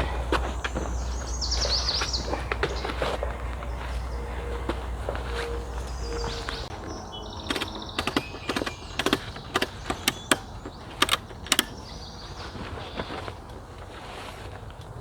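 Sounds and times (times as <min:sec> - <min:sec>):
camping gear clicks and knocks: 0:07.4 - 0:13.7.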